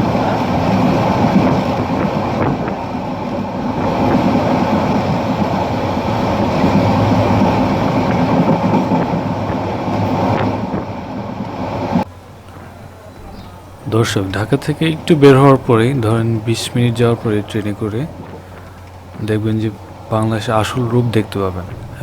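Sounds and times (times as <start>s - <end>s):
train wheels rumbling on rails: 0.0s - 22.0s
faint clicks: 17.5s - 19.3s.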